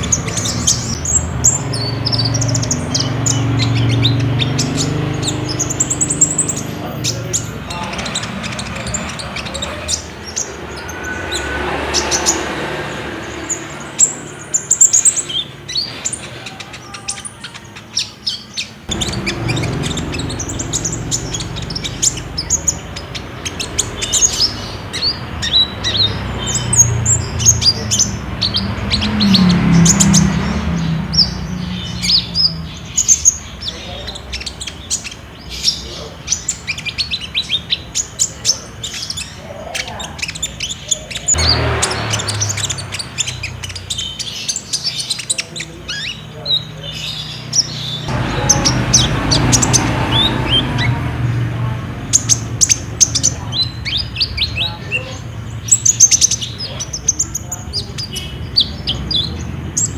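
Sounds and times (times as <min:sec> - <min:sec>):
sunbirds chirping and trilling: 0:00.0 - 0:59.9.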